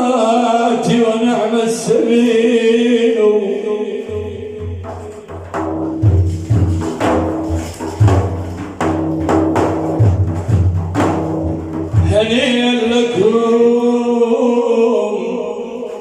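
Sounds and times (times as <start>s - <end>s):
person chanting: 0.0s - 5.4s, 12.0s - 16.0s
frame drums with jingles: 4.6s - 12.3s.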